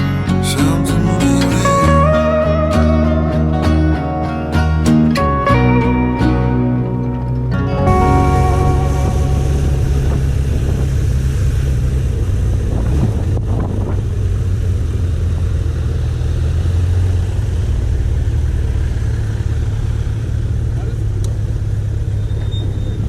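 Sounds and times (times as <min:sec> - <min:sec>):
wind rushing over microphone: 0:07.9 - 0:14.6
motorcycle engine running: 0:07.9 - 0:22.4.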